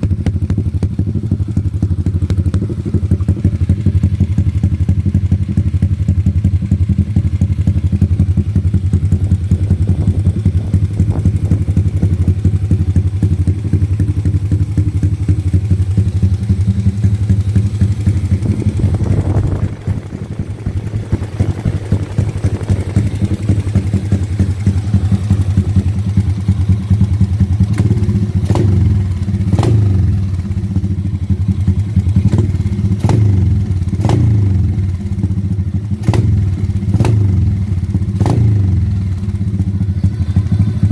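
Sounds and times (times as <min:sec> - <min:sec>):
motorcycle engine idling: 0:00.0 - 0:40.9
engine revving: 0:08.9 - 0:34.9, 0:36.0 - 0:38.8.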